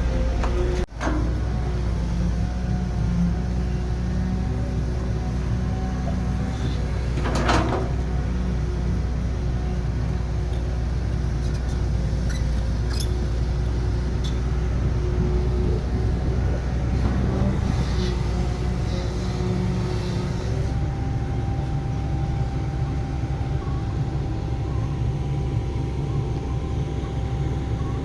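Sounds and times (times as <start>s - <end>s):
diesel machinery engines running: 0.0s - 28.0s.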